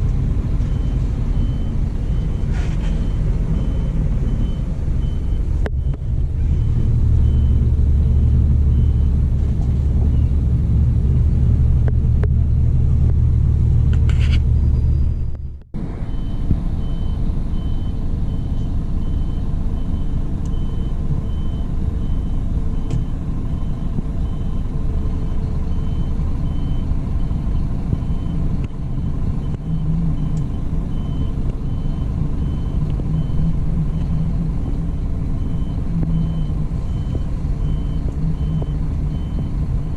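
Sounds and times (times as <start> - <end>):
coach engine rumbling: 0.0 - 39.9.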